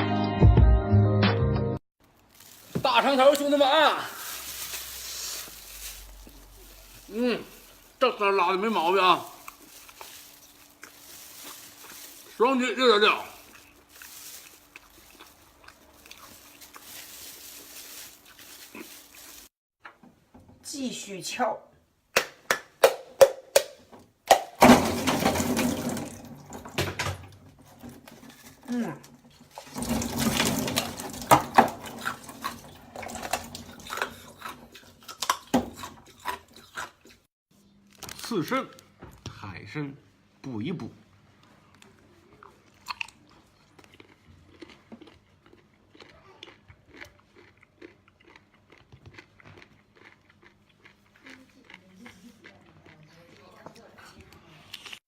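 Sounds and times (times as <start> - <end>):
crunchy wet chewing: 4.2 - 19.6, 31.8 - 37.3, 41.7 - 55.0.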